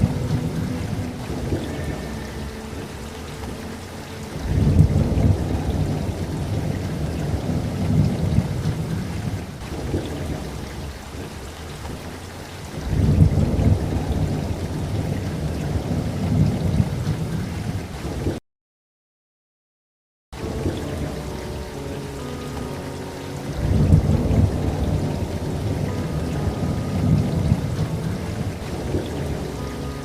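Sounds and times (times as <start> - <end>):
steady rain: 0.0 - 18.4, 20.4 - 30.0
thunder rolling: 4.3 - 18.4, 23.5 - 30.0.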